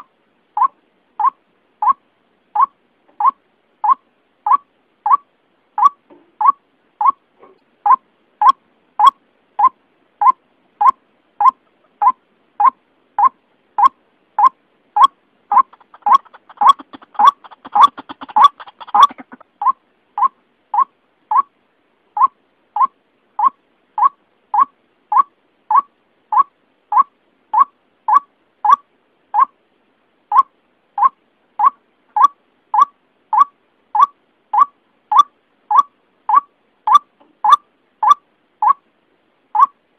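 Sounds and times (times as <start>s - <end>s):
faint rapid rattle: 15.7s - 19.4s.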